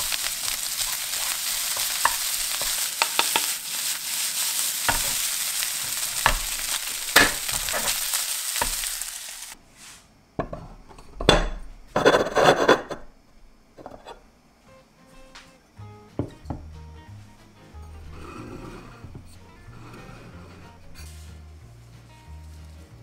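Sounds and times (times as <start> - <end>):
fried rice sizzling in a pan: 0.0 - 10.0.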